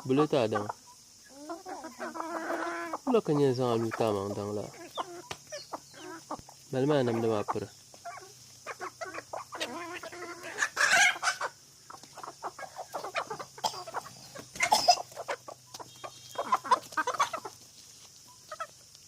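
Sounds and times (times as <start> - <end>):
chickens clucking: 0.0 - 19.0
chickens squawking: 0.0 - 19.0.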